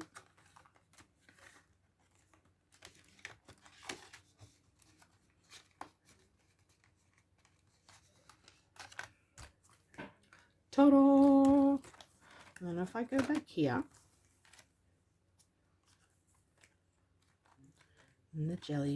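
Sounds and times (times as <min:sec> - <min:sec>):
paper envelopes rustling: 0:00.0 - 0:18.9.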